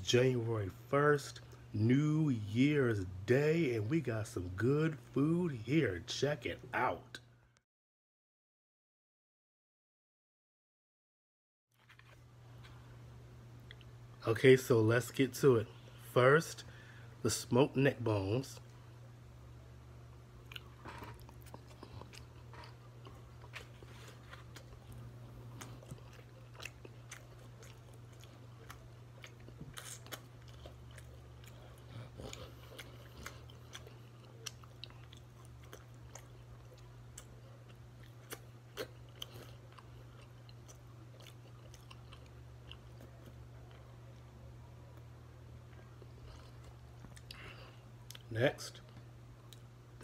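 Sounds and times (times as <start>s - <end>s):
steady low hum: 0.0s - 7.6s, 11.8s - 50.0s
person chewing and biting: 20.4s - 44.3s, 45.7s - 48.3s.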